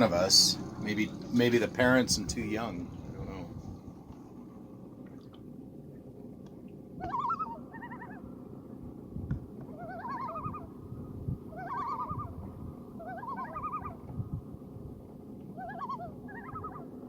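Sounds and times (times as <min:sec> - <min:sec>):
loons calling: 0:00.0 - 0:04.0, 0:06.6 - 0:08.8, 0:09.6 - 0:14.1, 0:15.4 - 0:17.0.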